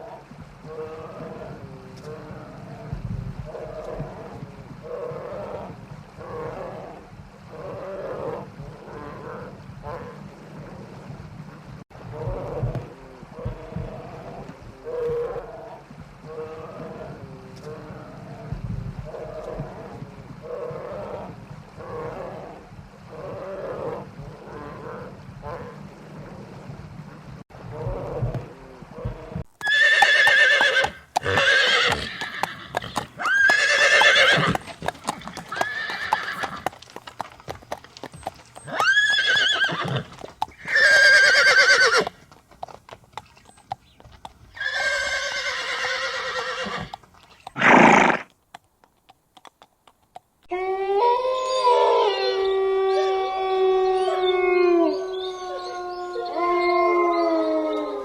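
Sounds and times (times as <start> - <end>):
loud whinny-like animal calls: 29.6 - 36.7, 38.6 - 42.1, 44.6 - 48.3.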